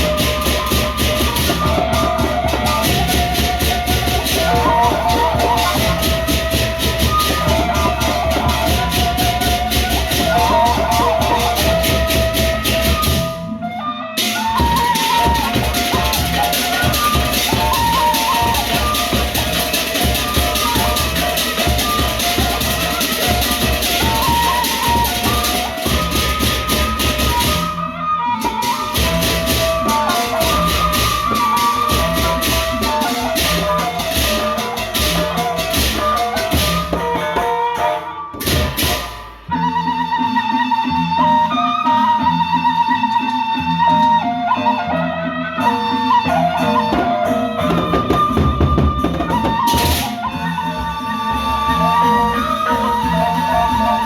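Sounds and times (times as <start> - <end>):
cymbals fast beat: 0.0 - 40.5, 45.6 - 54.0
high melody line: 0.0 - 42.2, 45.2 - 54.0
large drums: 0.0 - 44.3, 45.6 - 54.0.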